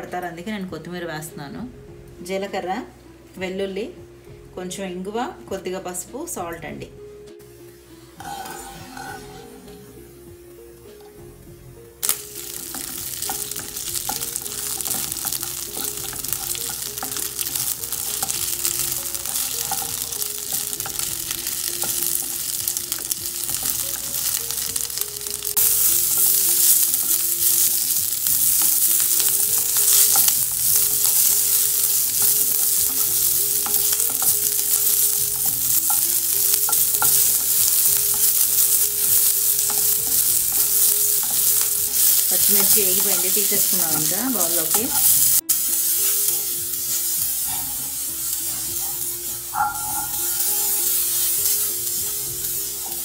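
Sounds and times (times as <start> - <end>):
chillies sizzling in hot oil: 7.7 - 11.1, 11.7 - 53.0
wooden spatula scraping a pan: 8.2 - 9.8.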